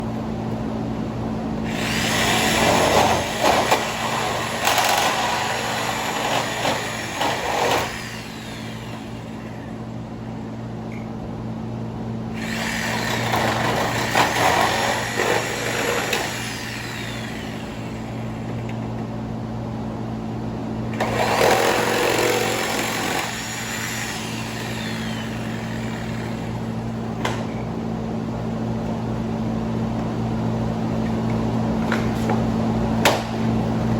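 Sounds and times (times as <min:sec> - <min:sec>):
steady low hum: 0:00.0 - 0:33.9
power tool whining: 0:01.6 - 0:09.8, 0:12.4 - 0:18.8, 0:21.0 - 0:26.9.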